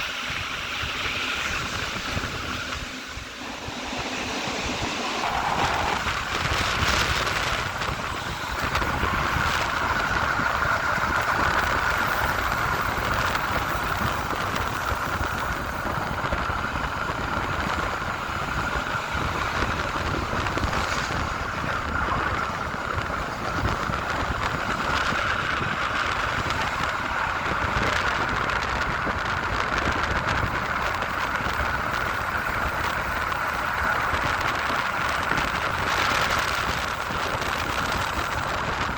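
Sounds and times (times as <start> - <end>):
train rumble and hiss: 0.0 - 38.9
steady high tone: 2.7 - 9.2.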